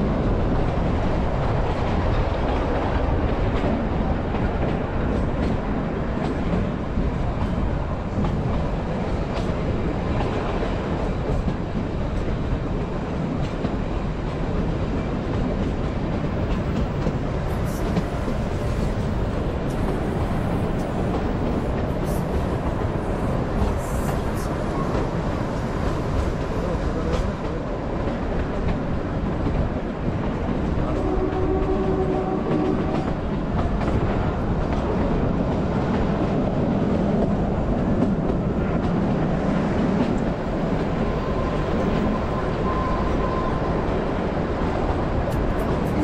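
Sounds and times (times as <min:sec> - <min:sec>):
train carriages rumbling on track: 0:00.0 - 0:46.0.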